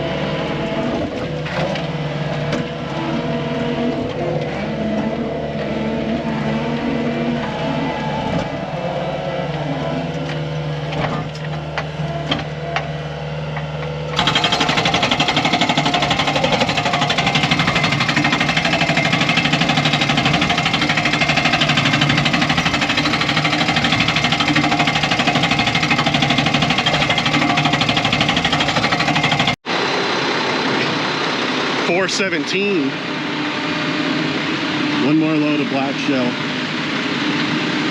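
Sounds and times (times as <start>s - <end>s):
truck engine running: 0.0s - 37.9s
fast mechanical rattle: 14.1s - 29.6s.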